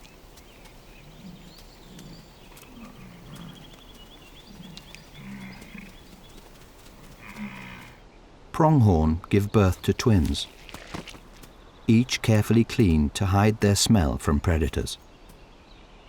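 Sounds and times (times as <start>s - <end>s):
bison low grunts: 0.9s - 6.4s, 7.1s - 8.0s.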